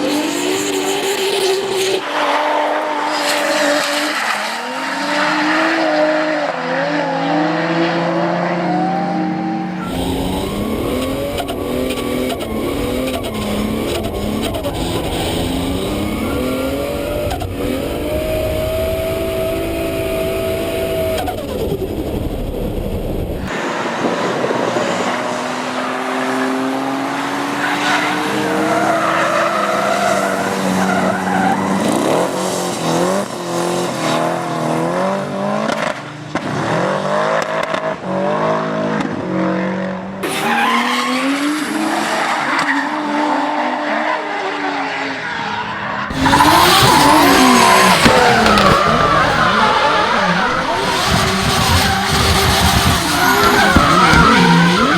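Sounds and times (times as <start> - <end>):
car engine revving hard: 0.0 - 42.2, 46.1 - 54.9
tyres squealing: 46.1 - 54.9.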